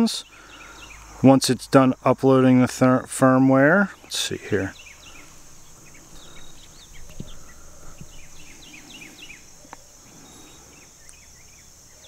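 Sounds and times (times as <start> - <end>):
birds chirping: 0.0 - 12.0
steady high hiss: 0.0 - 12.0
faint clicks: 11.0 - 11.3.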